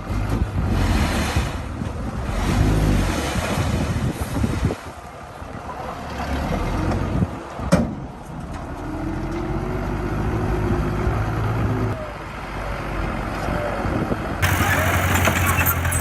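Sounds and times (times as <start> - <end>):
diesel engine running: 13.9 - 16.0.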